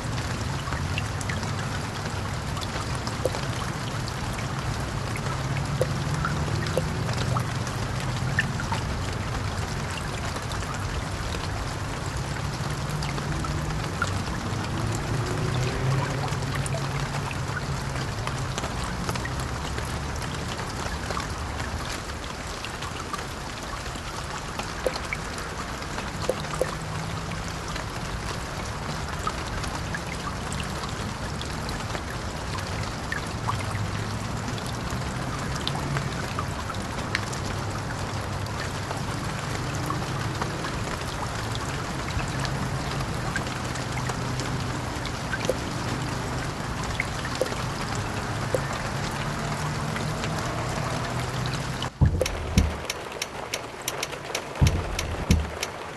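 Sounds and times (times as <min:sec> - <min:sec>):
road noise: 0:00.0 - 0:55.9
vehicle engine droning: 0:48.2 - 0:55.9
light clicks and rattles: 0:52.0 - 0:55.8.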